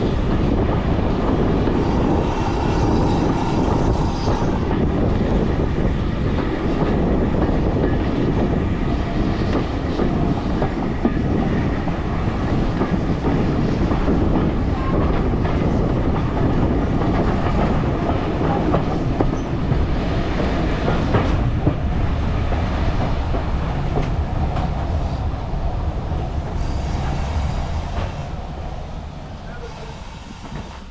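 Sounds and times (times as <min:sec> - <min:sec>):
train rumbling: 0:00.0 - 0:30.9.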